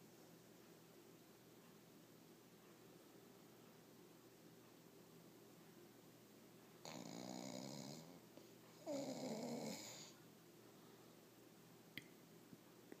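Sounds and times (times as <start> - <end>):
dog snoring: 6.8 - 8.2, 8.8 - 10.2.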